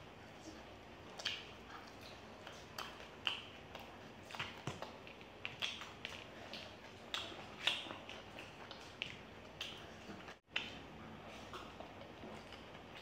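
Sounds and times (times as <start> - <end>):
people chewing: 0.2 - 13.0
wet mouth smacks: 1.1 - 10.8.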